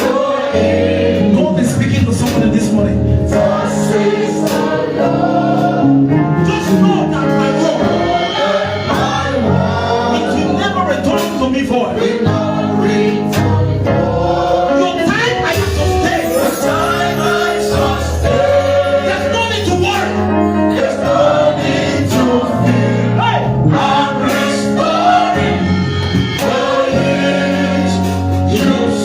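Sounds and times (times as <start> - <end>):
gospel choir with band: 0.0 - 29.0.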